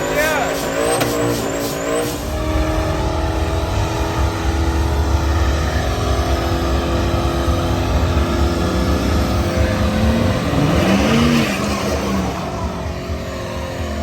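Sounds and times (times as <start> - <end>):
car engine revving: 0.0 - 14.0
high-pitched engine whines: 0.0 - 14.0.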